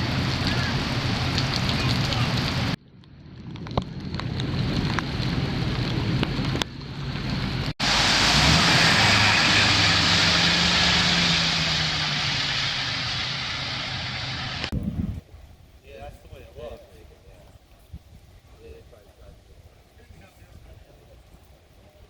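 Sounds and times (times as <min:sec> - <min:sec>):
heavy rain pouring: 0:00.0 - 0:02.8, 0:04.1 - 0:14.8
low hum: 0:00.0 - 0:15.0
sharp drop impacts: 0:07.8 - 0:14.9.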